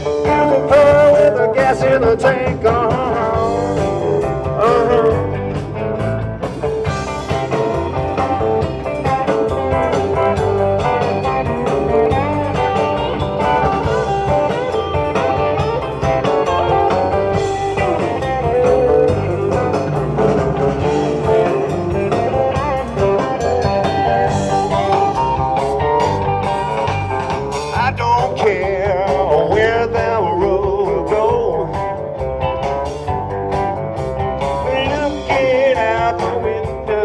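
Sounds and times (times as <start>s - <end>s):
bass and drums: 0.0s - 37.0s
guitar lead with bending notes: 0.0s - 37.0s.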